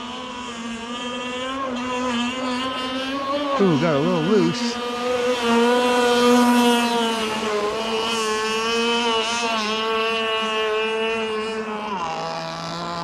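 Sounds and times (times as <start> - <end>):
model boat engine at high revs: 0.0 - 13.0.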